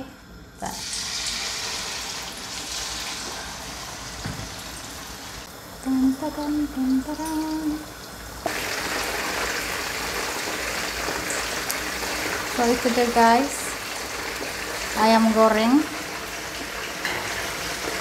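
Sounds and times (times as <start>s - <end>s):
chicken sizzling in hot oil: 0.7s - 5.5s, 7.4s - 18.0s
woman humming: 5.8s - 7.9s.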